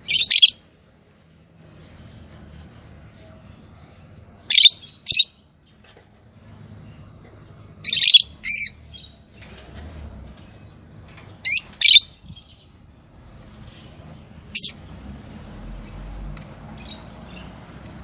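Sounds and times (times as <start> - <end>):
lovebirds chirping: 1.3 - 15.0.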